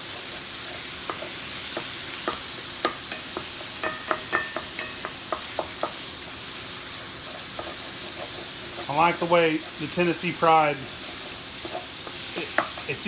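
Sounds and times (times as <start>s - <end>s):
sausage sizzling in grease: 0.0s - 13.0s
spatula tapping against pan: 0.9s - 6.0s, 11.1s - 13.0s.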